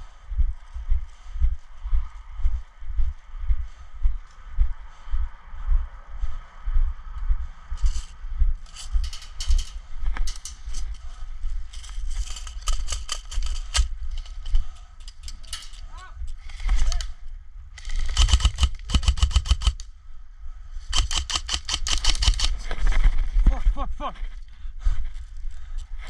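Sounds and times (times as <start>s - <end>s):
low wind rumble: 0.0s - 26.0s
gun handling noise: 7.9s - 17.2s
airsoft guns firing in bursts: 17.8s - 19.8s, 20.9s - 22.6s.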